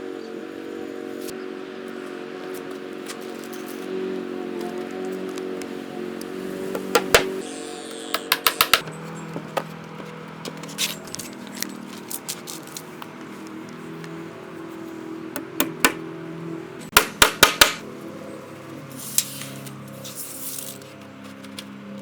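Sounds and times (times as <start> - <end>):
hammer striking nails into wood: 8.1 - 8.8, 16.9 - 17.8.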